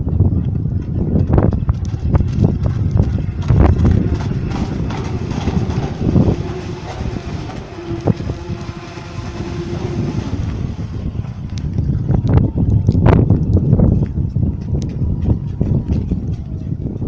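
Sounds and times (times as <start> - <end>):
wind rumble on microphone: 0.0 - 17.0
electric motor whine: 3.1 - 13.3.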